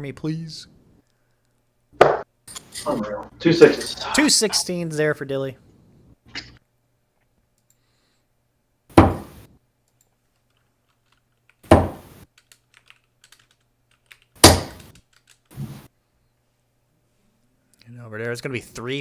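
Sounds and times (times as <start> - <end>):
darts thudding into dartboard: 2.0 - 2.2, 8.9 - 9.5, 11.7 - 12.2, 14.4 - 14.9.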